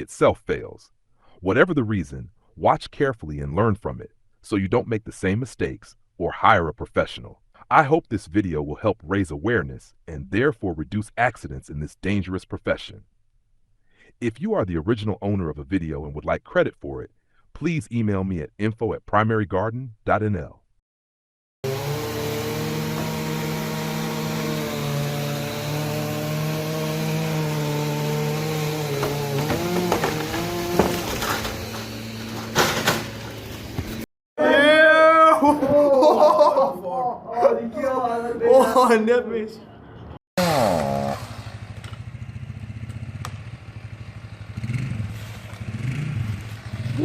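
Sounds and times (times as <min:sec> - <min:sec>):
chainsaw running at high revs: 0:21.6 - 0:32.7, 0:40.4 - 0:41.4.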